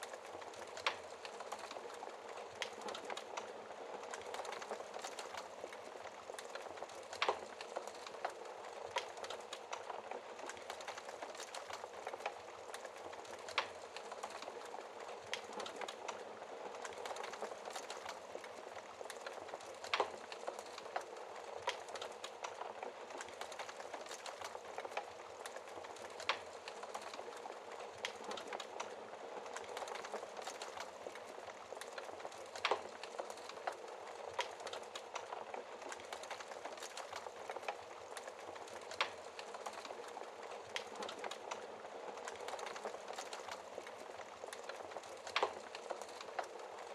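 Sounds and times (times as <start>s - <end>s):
wood fire crackling: 0.0s - 46.9s.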